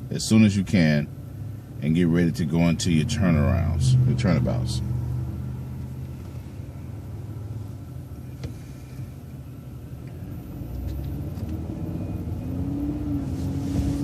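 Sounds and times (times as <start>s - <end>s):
bus engine accelerating: 2.8s - 14.0s.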